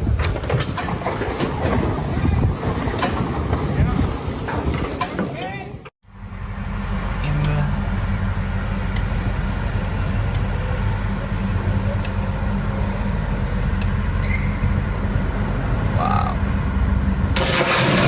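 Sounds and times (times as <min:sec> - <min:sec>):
low engine drone: 0:06.0 - 0:18.0
loud rushing noise: 0:06.2 - 0:18.0.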